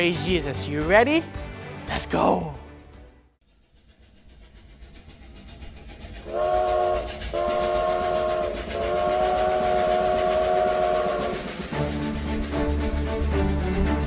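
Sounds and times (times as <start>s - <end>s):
steam train chugging: 3.4s - 14.0s
chord train whistle: 6.2s - 12.0s.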